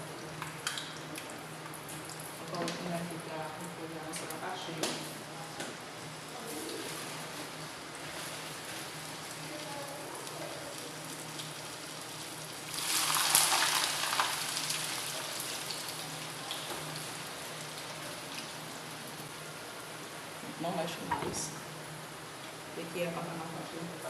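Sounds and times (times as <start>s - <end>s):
oil sizzling in a frying pan: 6.6s - 19.4s.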